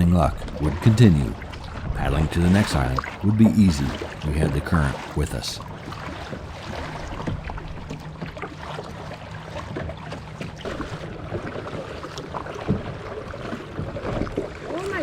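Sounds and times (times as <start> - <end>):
wind rumble on microphone: 0.0 - 4.3
paddle splashes: 0.0 - 15.0
water lapping against hull: 0.0 - 15.0.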